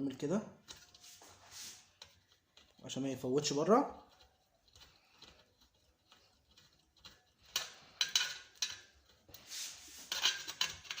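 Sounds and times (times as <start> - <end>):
screws and tools clicking: 4.0 - 11.0.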